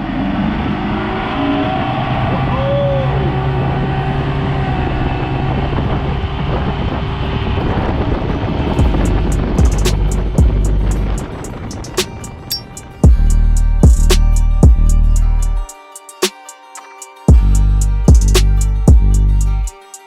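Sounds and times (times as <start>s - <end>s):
outboard motor running: 3.2s - 12.4s.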